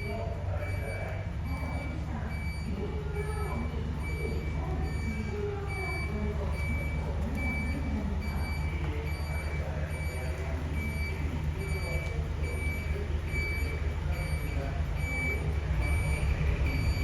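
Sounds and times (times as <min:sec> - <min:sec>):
diesel truck engine idling: 0:00.0 - 0:17.0
high electronic beep: 0:00.0 - 0:17.0.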